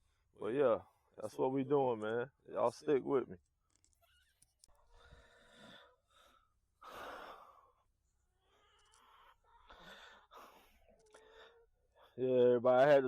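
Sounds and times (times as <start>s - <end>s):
faint breath puffs: 4.0s - 12.2s.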